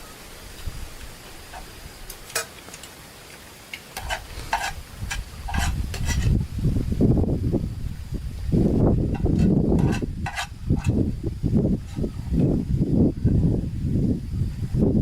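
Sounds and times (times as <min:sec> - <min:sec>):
faint sizzling: 0:00.0 - 0:06.6
utensil scraping against a pan: 0:03.9 - 0:06.4, 0:09.1 - 0:11.0.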